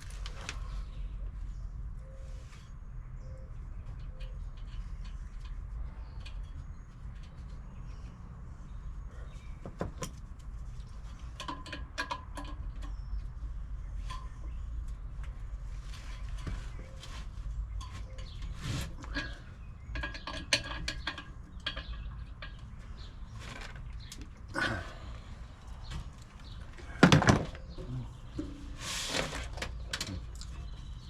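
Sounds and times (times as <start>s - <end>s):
tools and metal parts clinking: 9.9s - 13.0s, 17.8s - 22.8s.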